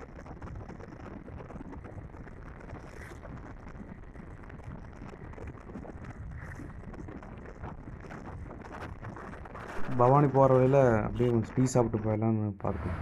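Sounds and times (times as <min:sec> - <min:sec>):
road and engine noise: 0:12.6 - 0:13.0.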